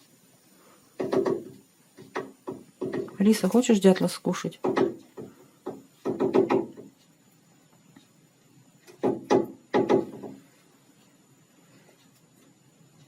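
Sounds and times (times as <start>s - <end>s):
woodpecker knocking on window: 1.0s - 3.3s, 4.6s - 7.0s, 8.9s - 10.4s.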